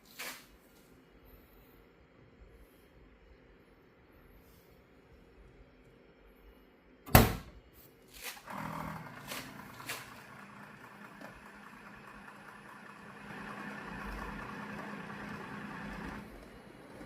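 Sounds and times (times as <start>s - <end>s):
motor and pump running: 8.4s - 17.0s.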